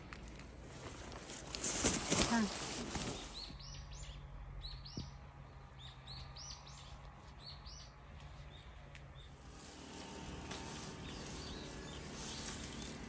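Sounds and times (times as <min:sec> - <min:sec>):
songbird chirping: 0:01.2 - 0:13.0.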